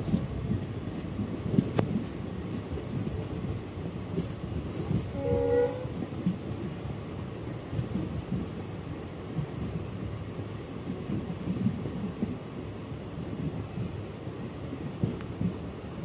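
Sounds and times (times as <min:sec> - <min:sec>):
train wheels rumbling on rails: 0:00.0 - 0:16.0
wind: 0:00.0 - 0:16.0
train horn blast: 0:05.1 - 0:06.0.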